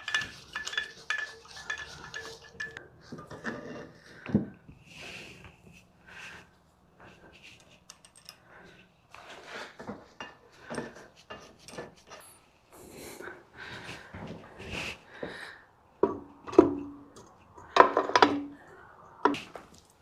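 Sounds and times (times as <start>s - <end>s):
metal parts scraping and clicking: 0.0s - 3.7s, 7.4s - 8.4s.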